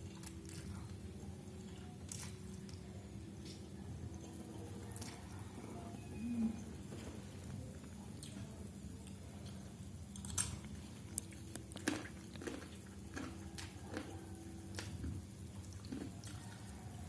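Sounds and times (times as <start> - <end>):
person chewing noodles: 9.0 - 17.0.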